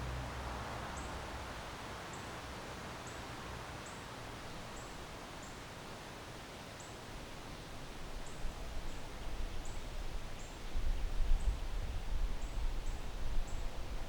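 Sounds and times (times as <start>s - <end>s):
wind gusting through trees: 0.0s - 14.0s
wind buffeting microphone: 8.2s - 14.0s.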